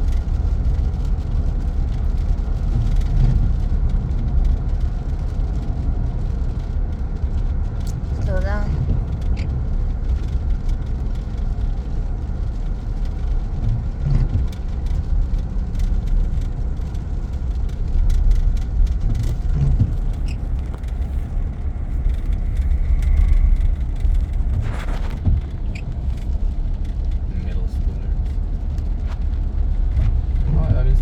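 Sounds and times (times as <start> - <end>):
engine and road noise rumble: 0.0 - 31.0.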